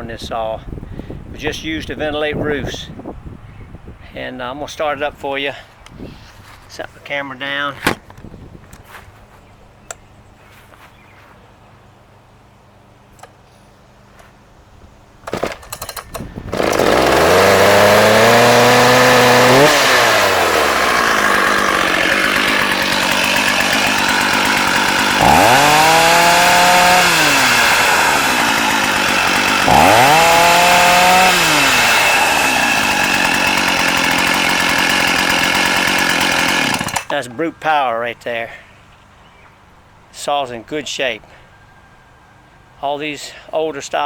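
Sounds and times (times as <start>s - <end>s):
starter cord pulls: 15.2s - 37.2s
chainsaw engine revving and idling: 15.3s - 37.2s.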